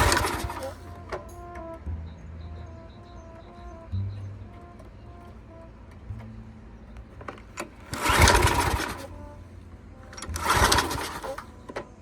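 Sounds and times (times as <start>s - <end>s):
engine pull-start cranking: 0.0s - 1.8s, 6.0s - 12.0s.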